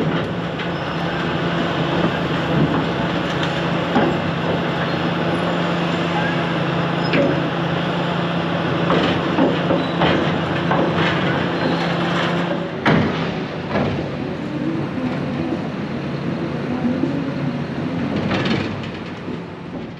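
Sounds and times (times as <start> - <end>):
demolition machinery running: 0.0 - 19.9
clanks and crashes of demolition: 8.8 - 14.1.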